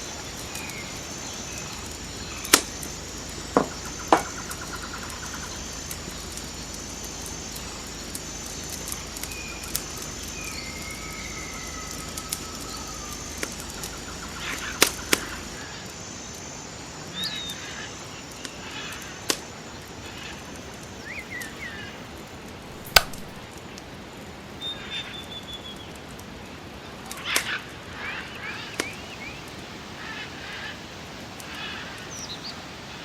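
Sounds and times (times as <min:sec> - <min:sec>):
small birds chirping: 0:00.0 - 0:16.4, 0:22.7 - 0:23.5
sharp knocks: 0:22.7 - 0:23.4.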